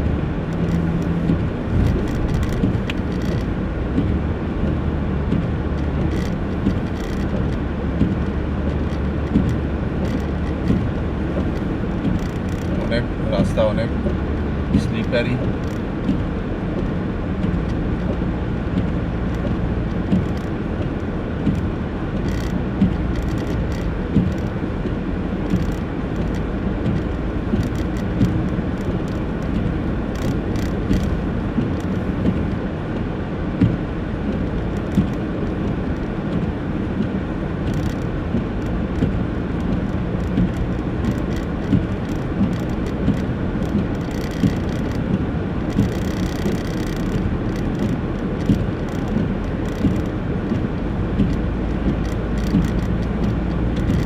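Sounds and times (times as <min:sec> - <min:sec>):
car cabin rumble: 0:00.0 - 0:54.0
small clicks or knocks: 0:00.5 - 0:04.1, 0:05.3 - 0:12.9, 0:18.8 - 0:24.5, 0:25.5 - 0:32.4, 0:37.7 - 0:54.0.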